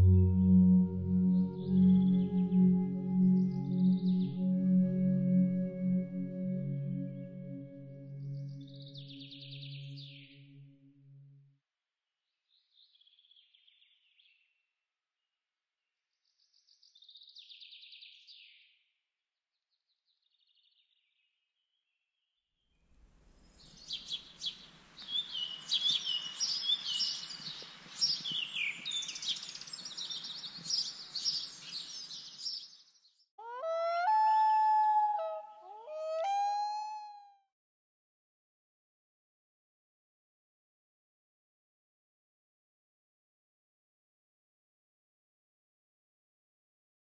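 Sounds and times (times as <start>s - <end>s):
soft outdoor hiss: 22.9s - 32.6s
birds chirping and singing: 23.6s - 32.8s.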